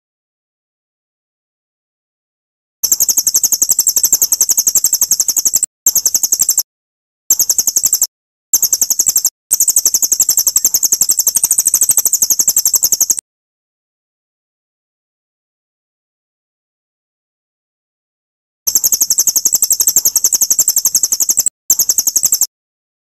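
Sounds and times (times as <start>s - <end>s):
songbird trilling: 7.3s - 13.2s.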